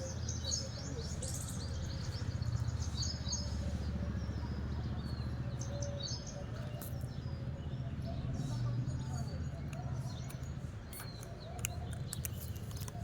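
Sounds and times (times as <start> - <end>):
small birds chirping: 8.3 - 13.0.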